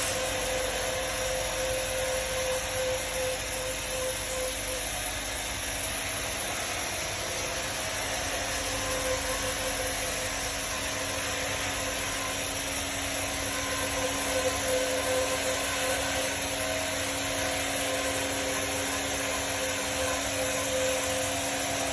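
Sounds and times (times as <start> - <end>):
powered saw cutting log: 8.0 - 21.9.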